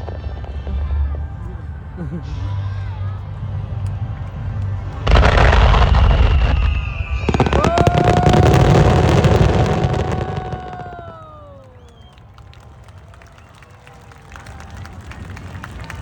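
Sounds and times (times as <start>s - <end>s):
fireworks bursting and crackling: 5.0s - 12.1s
falling whistling tone: 6.4s - 11.2s.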